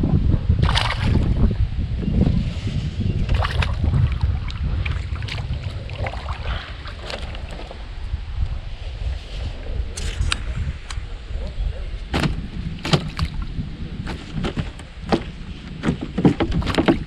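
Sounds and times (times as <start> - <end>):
wind buffeting microphone: 0.0 - 17.0
water splashing: 0.6 - 1.4, 3.3 - 7.8, 12.1 - 17.0
light knocks on kayak: 12.1 - 13.4.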